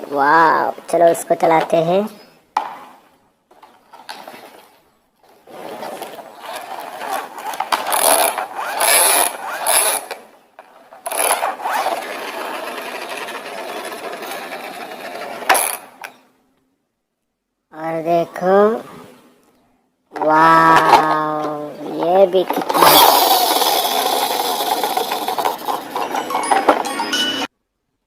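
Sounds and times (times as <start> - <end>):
toy vehicle wheels rattling on floor: 5.5 - 16.2, 20.9 - 27.5.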